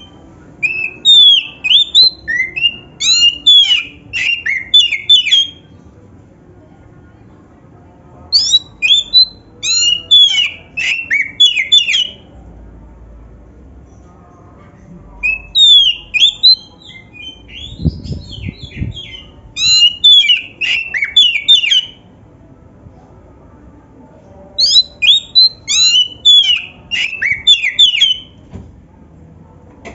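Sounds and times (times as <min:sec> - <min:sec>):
bird singing rapid high notes: 0:00.0 - 0:05.6, 0:08.4 - 0:12.2, 0:15.2 - 0:22.0, 0:24.6 - 0:28.4.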